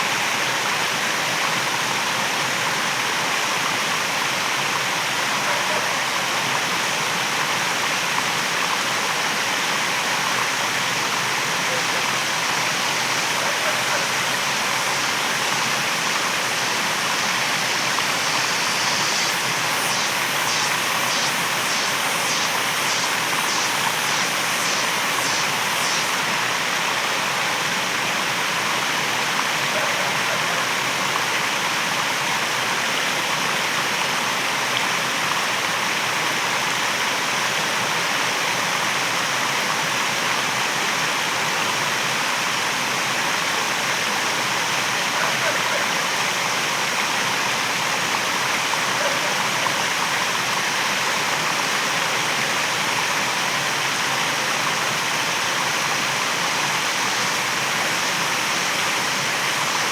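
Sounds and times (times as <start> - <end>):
waterfall rushing: 8.5 - 31.9
high pulsing sound: 12.8 - 26.3.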